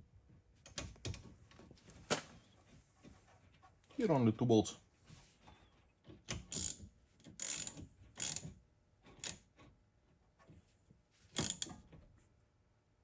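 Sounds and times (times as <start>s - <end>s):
ratchet wrench clicking: 6.5s - 6.8s, 7.4s - 8.4s, 9.2s - 9.4s, 11.4s - 11.7s.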